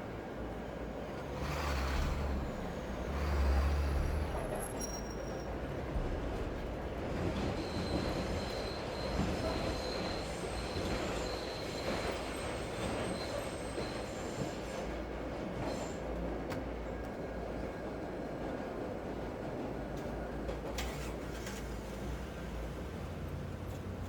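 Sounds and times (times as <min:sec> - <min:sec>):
train rolling past: 0:00.0 - 0:24.0.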